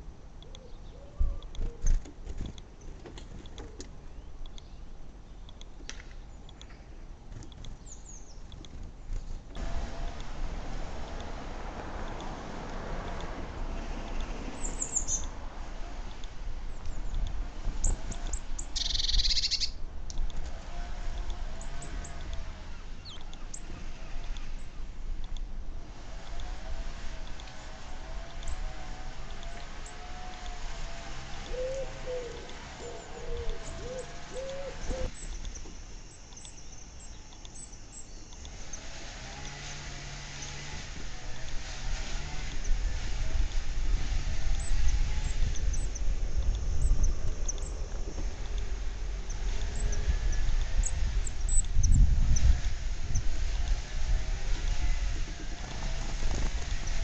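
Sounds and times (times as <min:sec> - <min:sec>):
faint outdoor background: 0:00.0 - 0:57.0
songbirds chirping: 0:00.0 - 0:57.0
steady low rumble: 0:08.4 - 0:18.8, 0:42.4 - 0:57.0
rapid bird trill: 0:17.8 - 0:19.8
pigeon cooing: 0:31.5 - 0:35.1.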